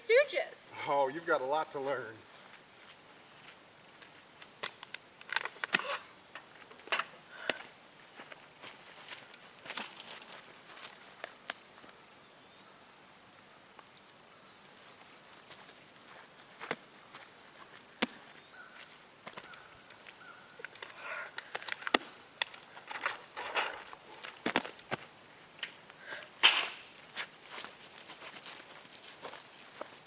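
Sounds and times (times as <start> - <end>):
insect high trill: 0.0 - 16.4
insect chirping: 0.0 - 30.0.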